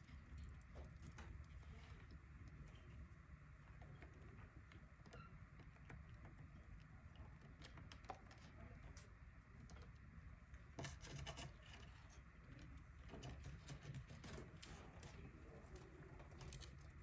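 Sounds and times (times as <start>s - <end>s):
faint scratching: 10.6s - 17.0s.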